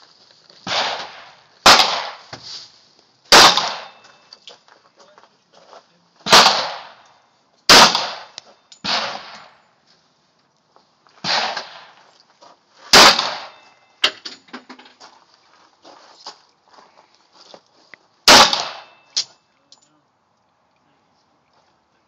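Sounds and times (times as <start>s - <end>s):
handgun shots: 0.6s - 2.2s, 3.3s - 4.0s, 6.2s - 7.0s, 7.7s - 9.5s, 11.2s - 11.9s, 12.9s - 13.6s, 18.3s - 19.3s.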